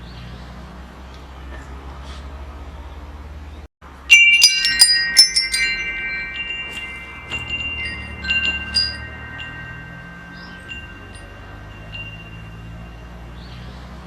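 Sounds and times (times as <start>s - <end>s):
metal wind chimes ringing: 3.9s - 14.0s.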